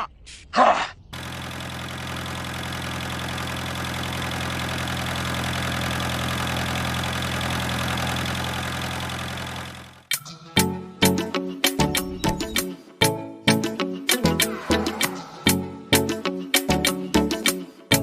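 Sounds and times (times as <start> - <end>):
tractor engine idling: 1.2 - 10.1
music: 10.1 - 18.0.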